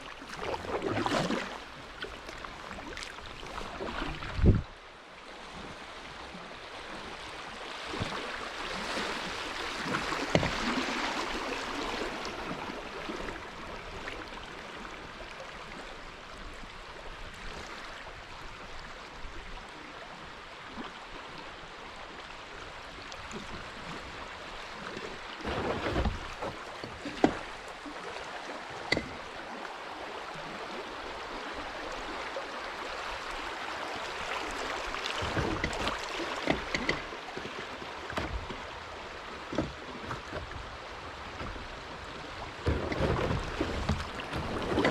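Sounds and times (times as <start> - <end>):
water rushing along kayak hull: 0.0 - 44.9.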